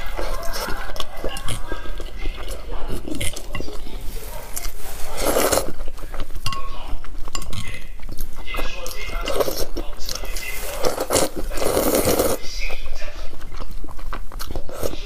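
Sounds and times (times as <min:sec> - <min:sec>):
utensils clinking against dishes: 0:03.0 - 0:03.9, 0:05.2 - 0:07.8.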